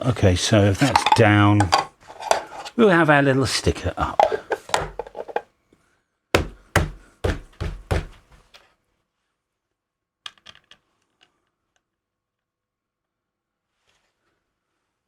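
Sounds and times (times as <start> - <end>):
box knocking on bench: 0.8 - 2.7, 4.0 - 5.4, 6.4 - 8.3.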